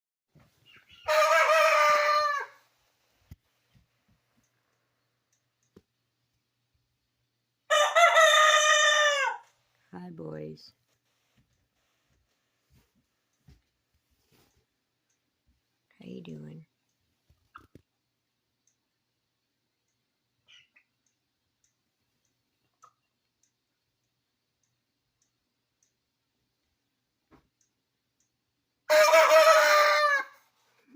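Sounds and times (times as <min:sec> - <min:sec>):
rooster crowing: 0:01.0 - 0:02.7, 0:07.7 - 0:09.5, 0:28.9 - 0:30.4.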